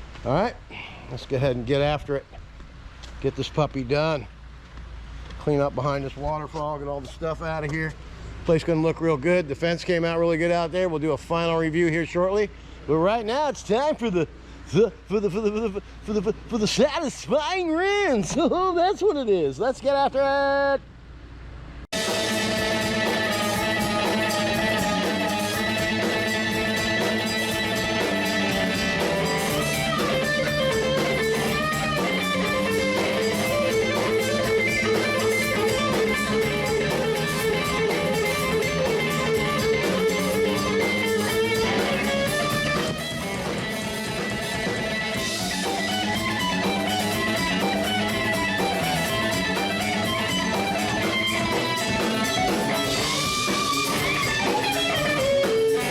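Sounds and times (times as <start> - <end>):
rock music with electric guitar: 21.9 - 55.9.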